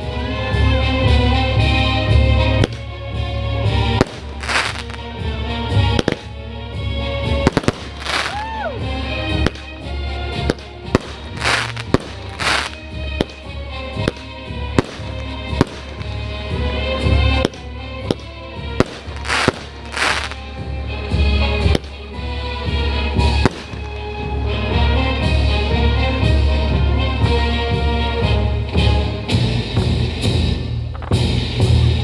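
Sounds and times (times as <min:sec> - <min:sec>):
music with steady bass: 0:00.0 - 0:32.0
fireworks bangs: 0:03.9 - 0:05.0, 0:05.9 - 0:06.3, 0:07.4 - 0:08.6, 0:09.3 - 0:20.6, 0:23.2 - 0:24.2
firework whistle: 0:04.0 - 0:05.0, 0:07.5 - 0:08.7, 0:10.5 - 0:13.4, 0:18.8 - 0:20.4.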